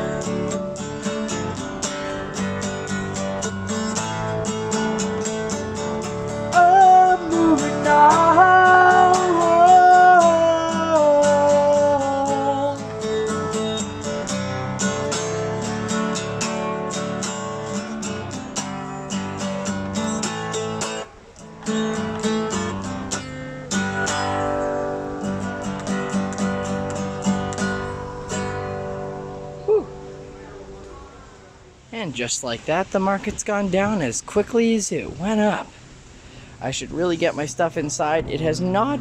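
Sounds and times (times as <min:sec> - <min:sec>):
acoustic guitar strumming: 0:00.0 - 0:31.2
person singing a held note: 0:29.6 - 0:30.0.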